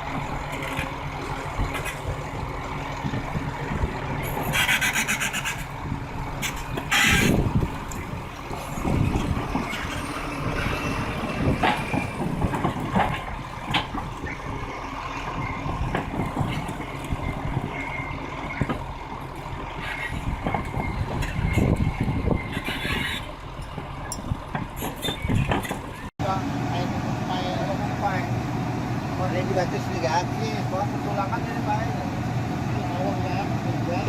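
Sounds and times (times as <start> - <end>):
heavy vehicle engine running: 0.0 - 34.0
knocks and clanks: 6.4 - 26.1.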